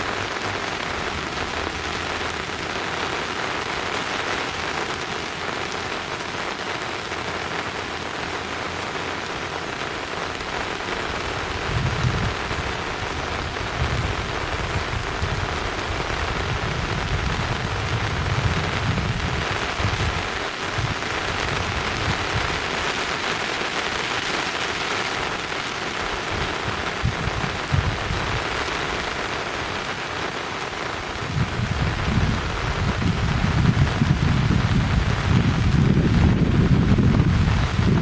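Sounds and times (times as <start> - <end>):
steady rain: 0.0 - 38.0
low rumbles: 31.2 - 38.0.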